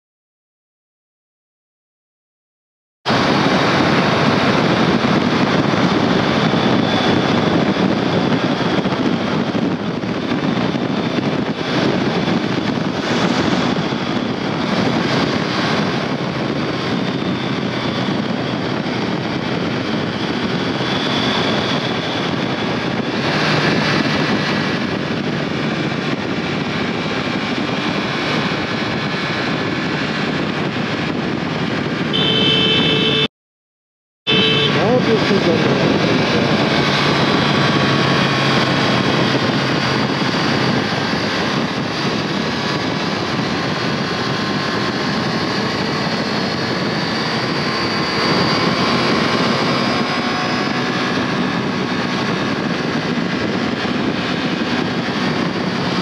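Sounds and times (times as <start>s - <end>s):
motorcycle engine and exhaust: 3.1s - 33.3s, 34.3s - 56.0s
wind rushing over microphone: 3.1s - 33.3s, 34.3s - 56.0s.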